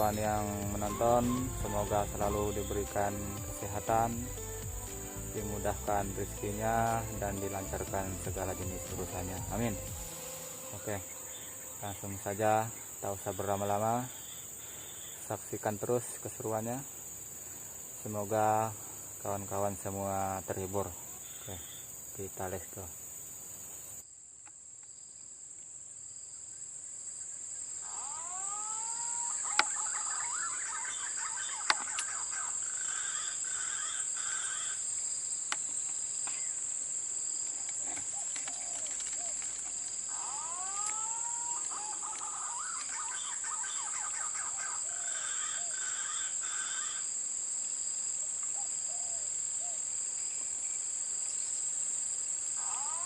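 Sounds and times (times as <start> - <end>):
electronic bird call whistles: 0.0 - 2.4
high insect drone: 0.0 - 53.0.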